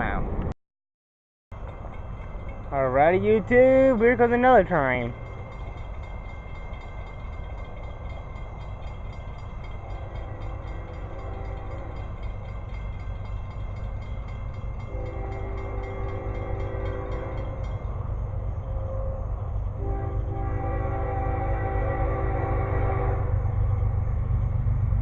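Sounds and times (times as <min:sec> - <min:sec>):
locomotive rumble: 0:01.5 - 0:25.0
multi-tone locomotive horn: 0:10.0 - 0:12.1, 0:14.8 - 0:17.6, 0:18.8 - 0:23.7.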